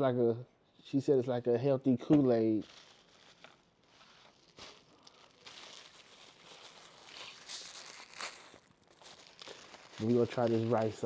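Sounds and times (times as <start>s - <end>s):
food packaging crinkling: 2.6s - 11.0s.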